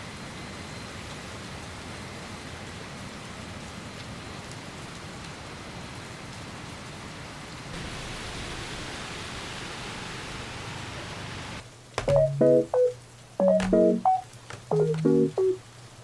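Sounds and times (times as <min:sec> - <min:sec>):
rain falling: 0:00.1 - 0:16.0
raindrop ticks: 0:11.9 - 0:15.6.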